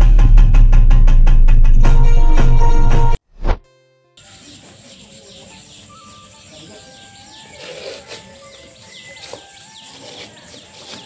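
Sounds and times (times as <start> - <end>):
birds chirping: 4.2 - 11.0.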